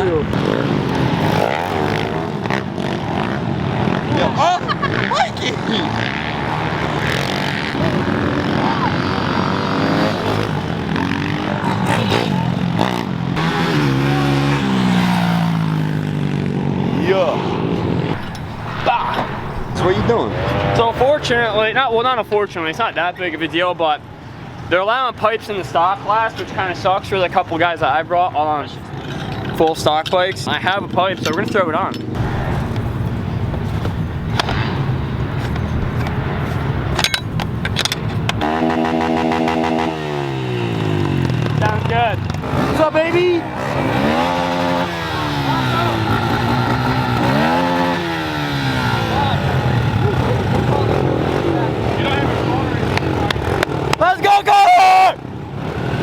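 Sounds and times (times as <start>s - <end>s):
pit bike engines revving: 0.0s - 56.0s
low rumble: 16.7s - 21.7s
sharp cracks: 32.1s - 49.0s.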